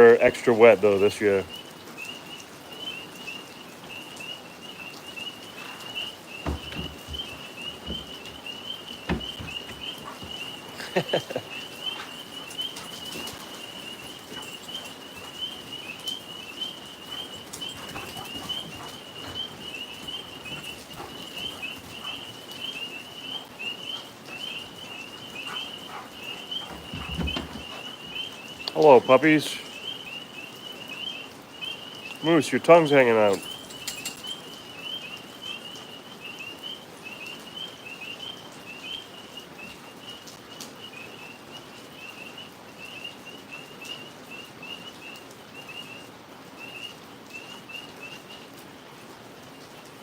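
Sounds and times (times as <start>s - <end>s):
tree frogs trilling: 0.0s - 48.9s
soft knocks: 6.4s - 10.4s, 26.7s - 27.7s.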